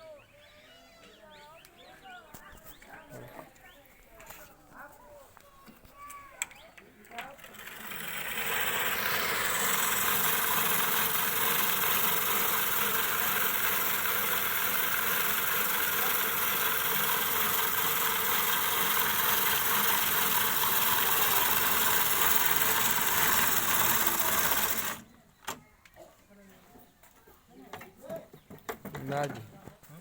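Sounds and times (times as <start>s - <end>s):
machine rushing noise: 7.6s - 25.0s.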